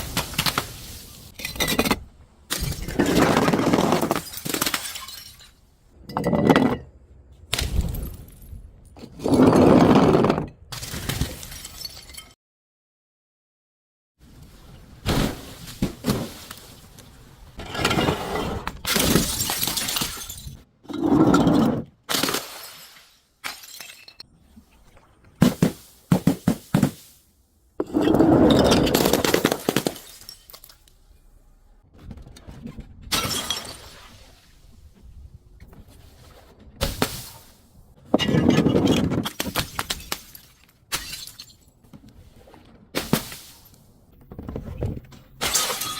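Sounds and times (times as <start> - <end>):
glass bottles smashing: 2.5 - 5.6, 10.8 - 12.4, 18.9 - 20.6, 22.1 - 24.2, 27.9 - 30.9, 33.1 - 34.0, 38.2 - 41.7, 45.4 - 45.9.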